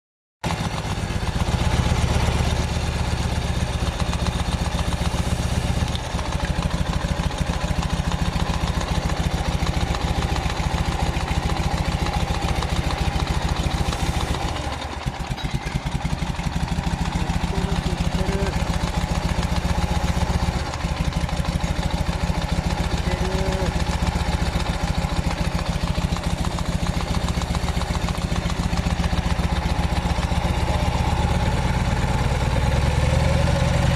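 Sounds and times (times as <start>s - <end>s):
engine idling: 0.4s - 33.9s.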